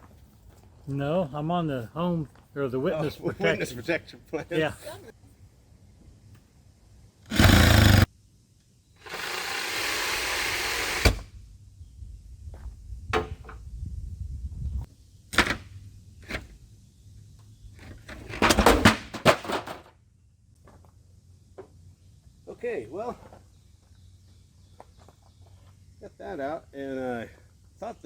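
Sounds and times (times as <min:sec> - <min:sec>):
power saw cutting wood: 0:07.3 - 0:08.1, 0:09.0 - 0:11.2.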